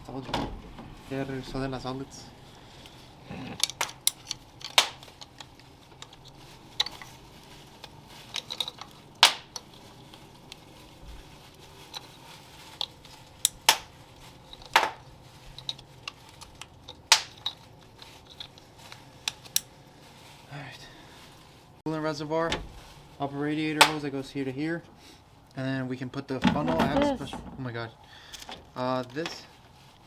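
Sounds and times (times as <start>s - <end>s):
metallic clinks of hand tools: 3.6s - 5.0s, 13.5s - 13.8s.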